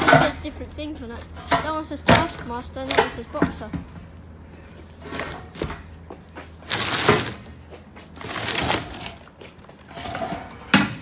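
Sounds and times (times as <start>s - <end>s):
scraping and rustling: 4.6s - 10.7s.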